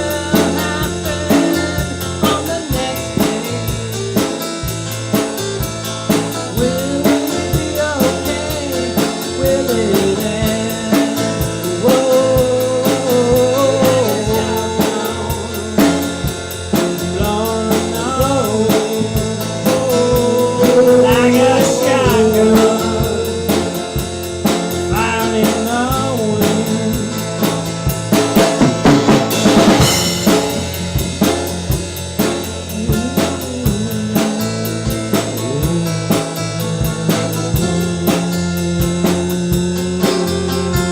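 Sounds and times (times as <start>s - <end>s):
blues-rock band playing: 0.0s - 40.9s.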